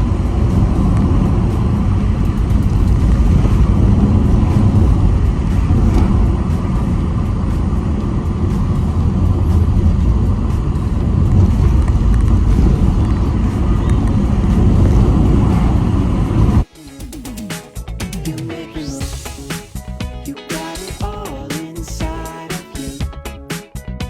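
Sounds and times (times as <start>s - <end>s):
car road and engine rumble: 0.0s - 16.7s
music playing: 0.0s - 24.0s.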